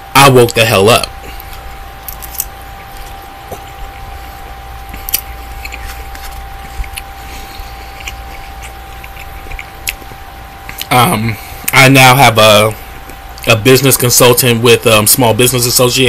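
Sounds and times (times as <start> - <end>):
low electrical hum: 0.0 - 16.0
person chewing food: 1.0 - 11.8, 12.8 - 13.5.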